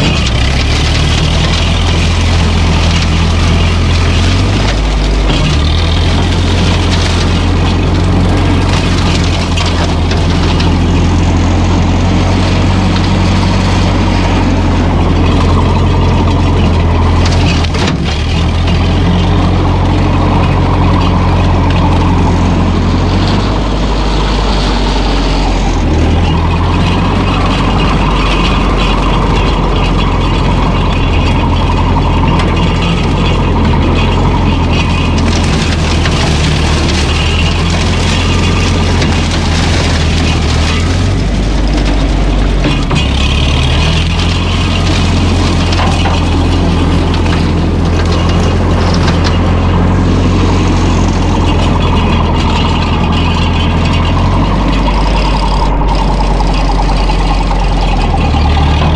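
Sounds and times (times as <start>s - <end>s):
tractor engine running: 0.0s - 58.9s.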